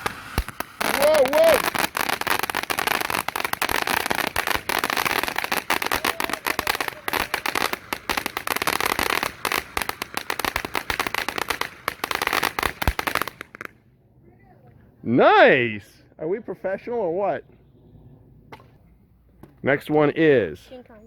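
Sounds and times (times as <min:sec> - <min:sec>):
firework crackling: 0:00.0 - 0:14.6.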